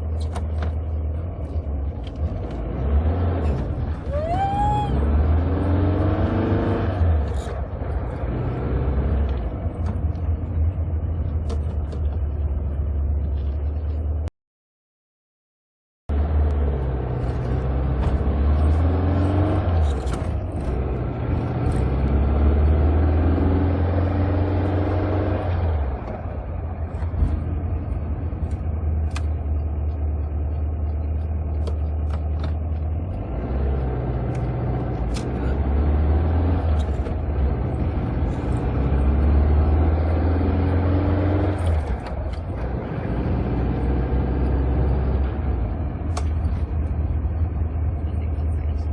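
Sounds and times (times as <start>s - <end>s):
car engine revving: 1.0s - 13.9s, 16.1s - 48.9s.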